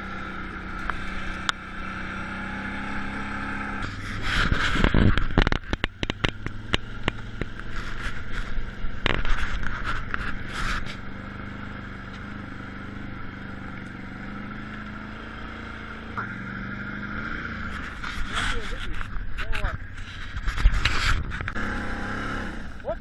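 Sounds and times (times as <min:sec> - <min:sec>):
atv engine running: 0:00.0 - 0:23.0
knocks and scraping: 0:03.8 - 0:11.2, 0:17.4 - 0:21.8.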